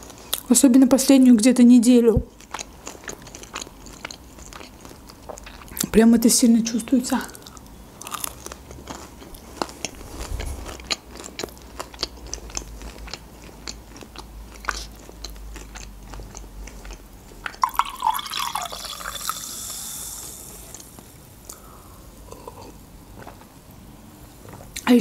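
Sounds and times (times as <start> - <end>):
chewing crunchy food: 2.3 - 5.9, 7.3 - 21.6, 22.2 - 23.6
fizzy drink poured into glass: 17.6 - 20.4.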